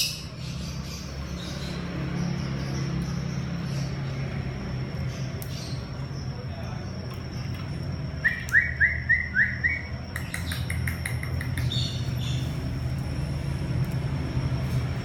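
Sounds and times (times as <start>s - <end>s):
steady low hum: 0.0s - 15.0s
cockatiel whistling: 8.2s - 10.5s.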